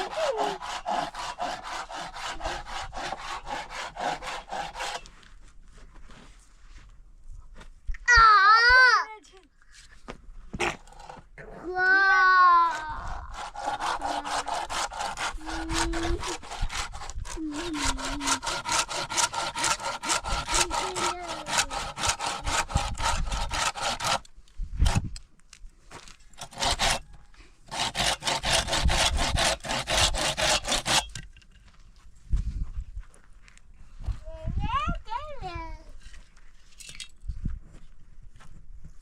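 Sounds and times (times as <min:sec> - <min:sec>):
hand saw cutting wood: 0:00.0 - 0:05.2, 0:10.6 - 0:11.5, 0:12.6 - 0:25.2, 0:26.4 - 0:31.3.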